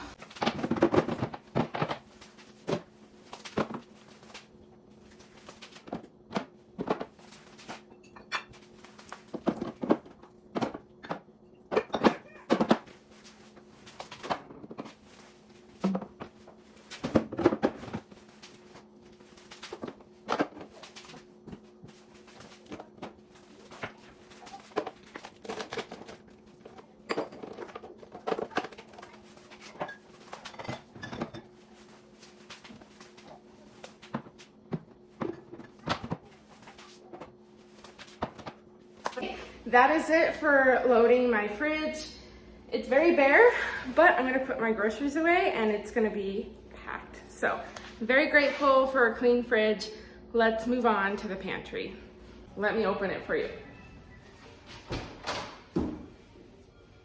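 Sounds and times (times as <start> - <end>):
faint steady hum: 0.0 - 57.0
bottles and jars clinking on shelves: 5.8 - 13.0, 22.7 - 31.6.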